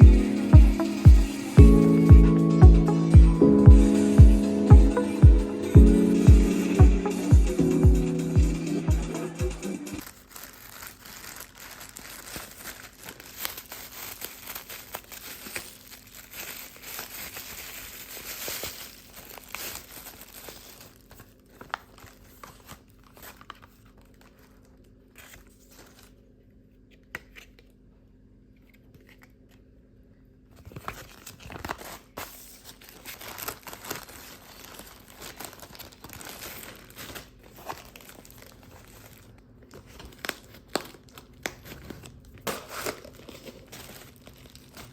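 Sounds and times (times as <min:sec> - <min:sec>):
rustling and crinkling: 0:10.0 - 0:27.8, 0:30.4 - 0:44.9.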